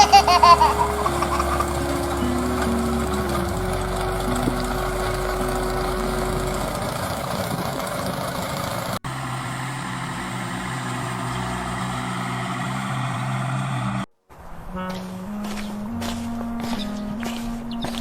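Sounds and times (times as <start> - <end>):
engine running steadily: 0.0 - 14.1.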